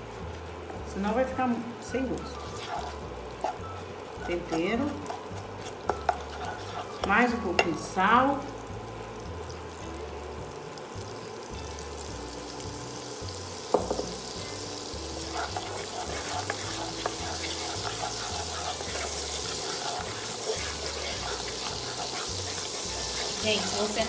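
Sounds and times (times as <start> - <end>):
seasoning sizzling in butter: 0.0 - 24.0
spoon scraping pan: 2.4 - 7.8, 15.2 - 24.0.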